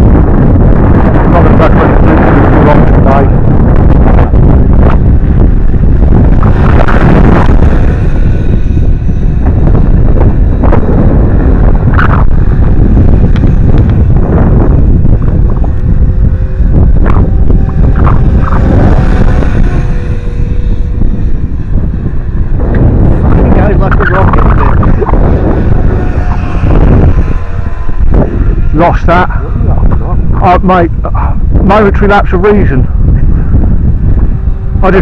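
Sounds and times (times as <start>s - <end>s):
faint helicopter whine: 0.0s - 35.0s
wind buffeting microphone: 0.0s - 35.0s.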